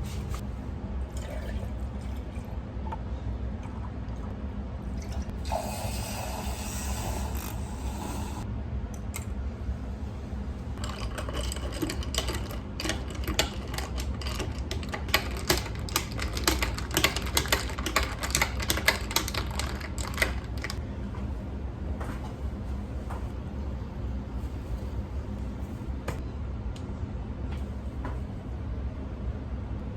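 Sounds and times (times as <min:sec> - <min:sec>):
steady low hum: 0:00.0 - 0:29.9
utensil clicking against a dish: 0:10.8 - 0:20.8.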